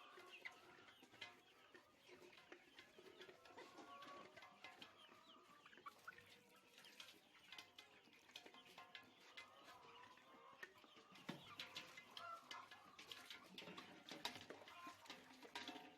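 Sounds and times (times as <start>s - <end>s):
poultry clucking and peeping: 0.0s - 15.9s.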